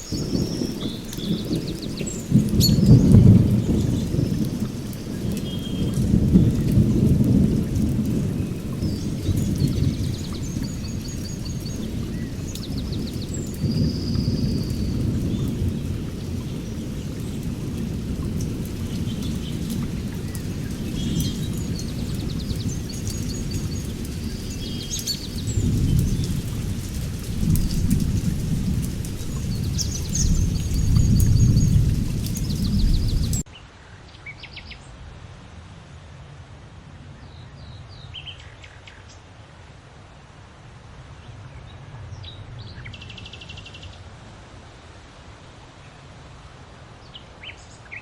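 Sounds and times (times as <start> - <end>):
small birds chirping and trilling: 0.0 - 7.0, 7.6 - 33.4
rolling thunder: 0.0 - 33.5
steady rain: 0.0 - 48.0.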